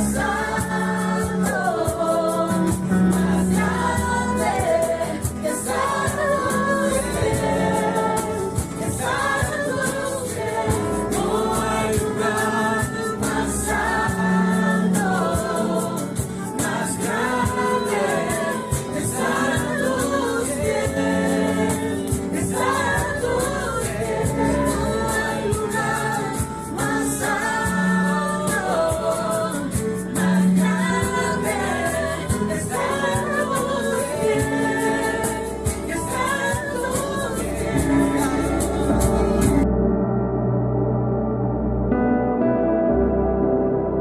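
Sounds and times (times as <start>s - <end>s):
choir singing: 0.0s - 39.8s
sustained low instrumental tones: 37.4s - 44.0s.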